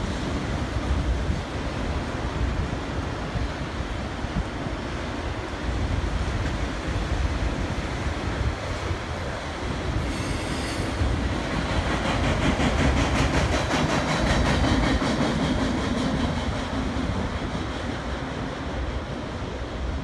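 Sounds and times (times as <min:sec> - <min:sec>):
train rumble: 0:00.0 - 0:20.0
train wheels clicking over rail joints: 0:09.9 - 0:19.2.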